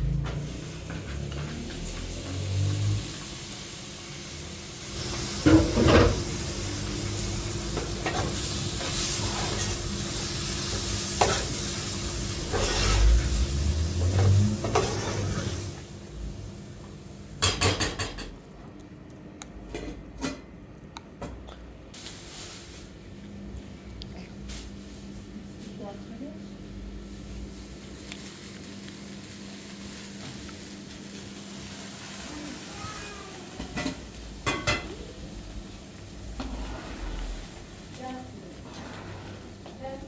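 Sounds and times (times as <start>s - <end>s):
food sizzling in a pan: 0.0s - 17.8s, 22.0s - 23.0s, 26.7s - 40.0s
pots and dishes clattering: 5.1s - 6.4s, 11.1s - 11.6s, 14.1s - 15.7s, 17.4s - 18.4s, 33.5s - 35.1s.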